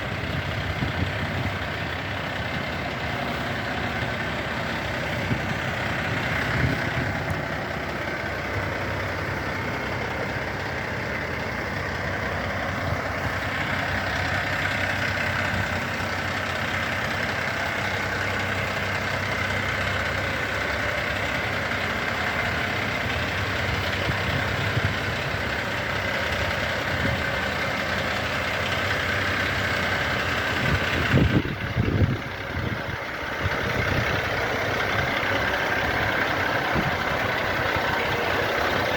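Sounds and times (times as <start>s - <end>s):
diesel engine idling: 0.0s - 38.9s
engine knocks: 0.0s - 38.9s.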